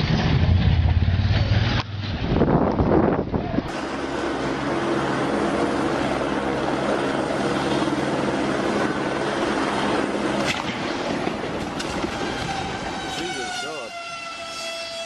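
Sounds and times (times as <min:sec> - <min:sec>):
helicopter engine and rotor drone: 0:03.7 - 0:15.0.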